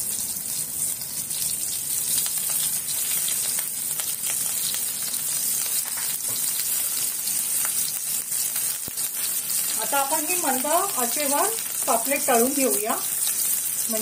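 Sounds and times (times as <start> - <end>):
fish sizzling in hot oil: 0.0 - 14.0.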